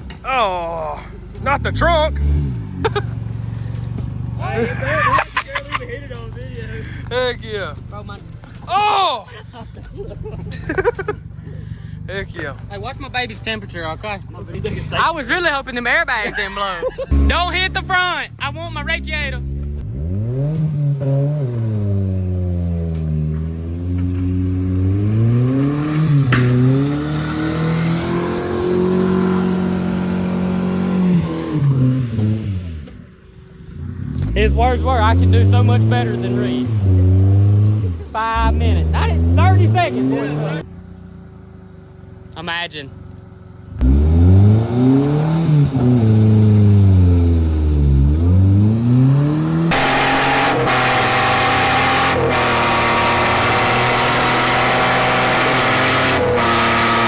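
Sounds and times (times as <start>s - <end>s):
rough running engine: 0.0s - 25.7s, 49.4s - 57.0s
car engine revving: 0.0s - 57.0s.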